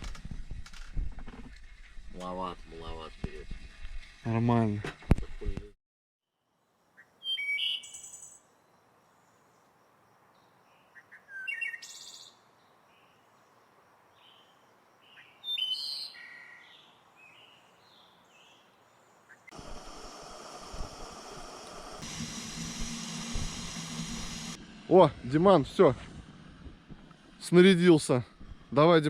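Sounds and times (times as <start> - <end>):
songbirds chirping: 6.6 - 19.5
steady hiss: 19.5 - 29.0.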